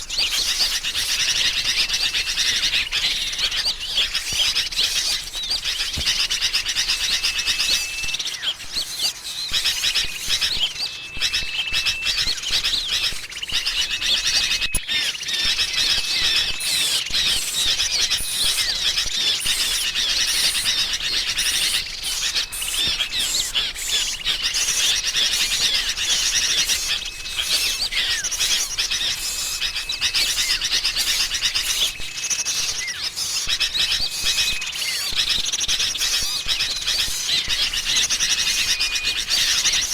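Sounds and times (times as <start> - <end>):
bulbuls chattering: 0.0 - 39.9
small songbirds chirping: 0.0 - 39.9
short level whistles: 7.1 - 12.4.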